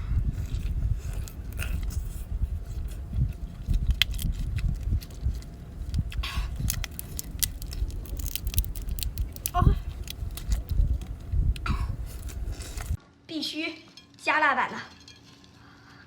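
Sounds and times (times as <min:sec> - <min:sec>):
lobster shell cracking and scraping: 0:00.0 - 0:13.0
low handling rumble: 0:00.0 - 0:13.0.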